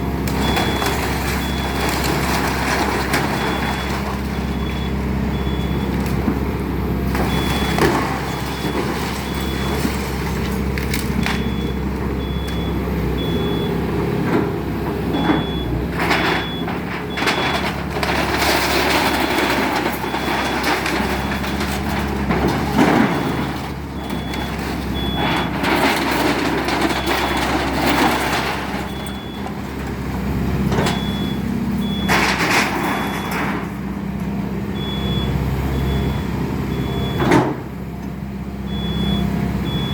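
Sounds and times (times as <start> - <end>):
crunching and clatter of demolition: 0.0 - 39.9
diesel engine running: 0.0 - 39.9
travel alarm beeping: 30.9 - 32.1, 38.7 - 39.9.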